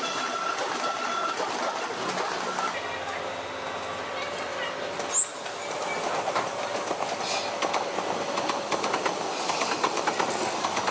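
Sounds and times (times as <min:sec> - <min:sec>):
train wheels clattering over rail joints: 0:00.0 - 0:02.8, 0:03.8 - 0:10.9.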